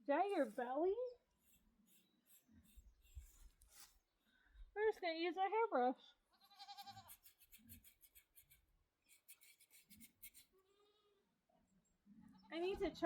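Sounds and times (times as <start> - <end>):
brush strokes on horse coat: 0.2 - 4.1, 6.9 - 10.5.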